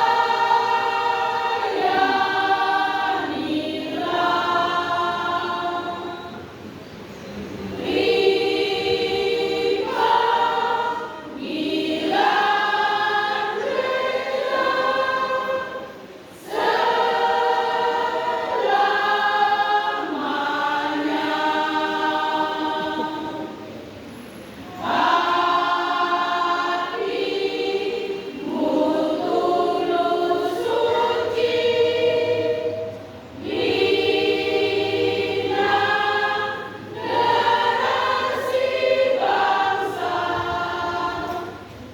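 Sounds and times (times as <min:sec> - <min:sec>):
women's choir singing: 0:00.0 - 0:41.9.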